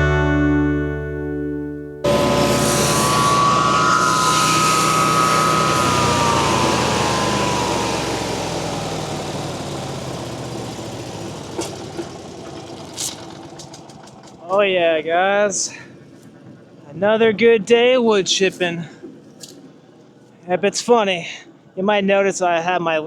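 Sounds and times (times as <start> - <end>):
wood chipper whining: 2.0 - 15.1.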